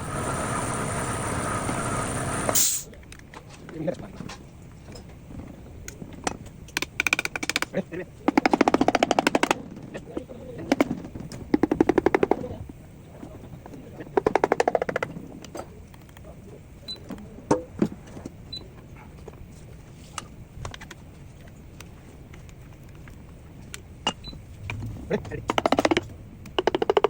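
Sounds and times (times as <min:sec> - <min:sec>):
impact wrench hammering: 0:25.5 - 0:27.0.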